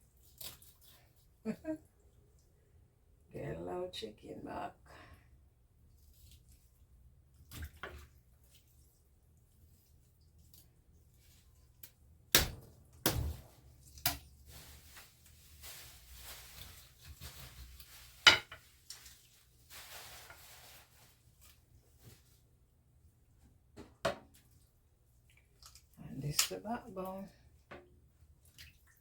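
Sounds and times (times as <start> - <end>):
scraping and handling meat: 5.6 - 22.8
knife chopping raw chicken: 12.3 - 13.4.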